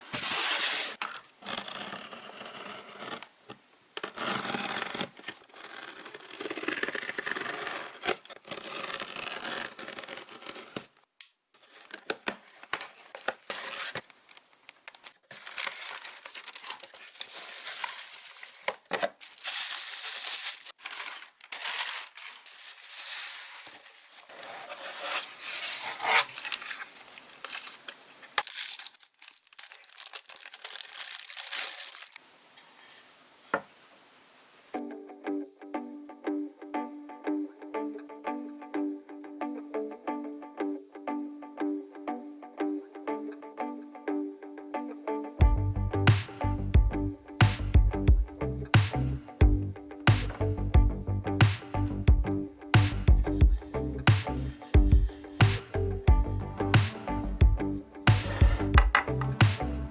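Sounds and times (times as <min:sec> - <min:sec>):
paper wrapping crinkling and tearing: 0:04.0 - 0:11.0, 0:11.6 - 0:32.2, 0:53.3 - 0:55.6.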